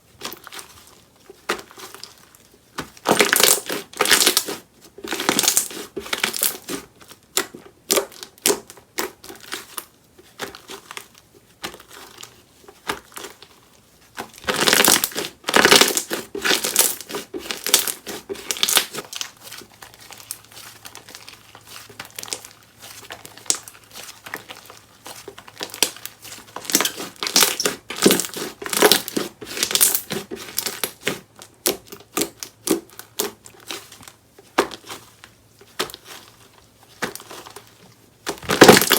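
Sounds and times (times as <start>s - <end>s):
crunchy slime crackling: 0.1s - 13.6s, 14.2s - 38.9s.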